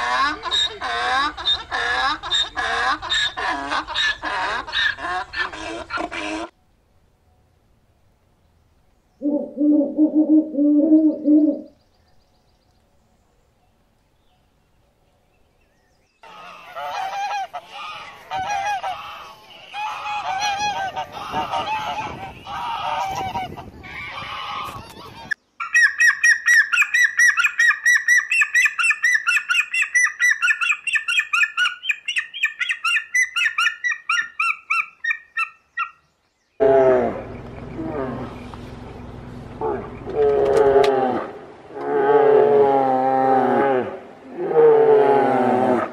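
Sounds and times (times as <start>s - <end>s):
low steady animal call: 9.2s - 11.9s, 36.6s - 45.9s.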